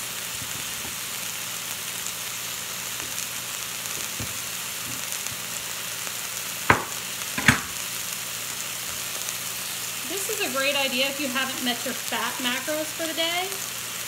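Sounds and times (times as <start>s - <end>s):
meat sizzling in skillet: 0.0s - 14.0s
sharp knocks: 6.7s - 7.7s.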